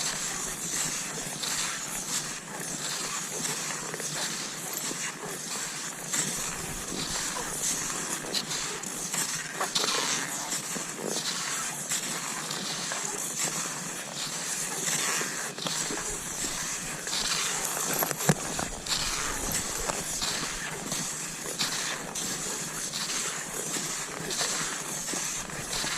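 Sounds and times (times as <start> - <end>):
skis scraping over snow: 0.0 - 25.9.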